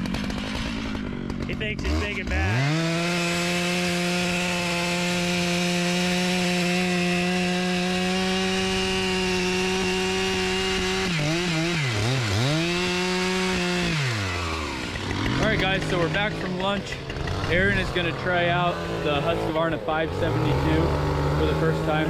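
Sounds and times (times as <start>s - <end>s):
chainsaw at full throttle: 0.0s - 22.0s.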